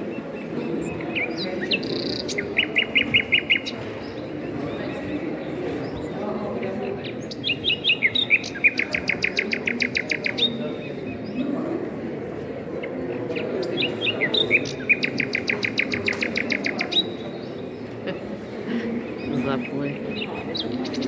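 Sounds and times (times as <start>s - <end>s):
songbird singing with trill: 0.1s - 5.2s, 5.9s - 11.5s, 13.3s - 18.0s, 19.0s - 21.0s.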